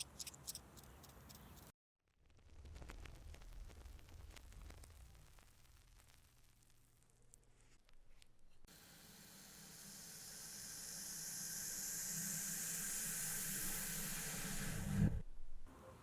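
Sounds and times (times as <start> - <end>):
reversed hissing: 8.9 - 15.3.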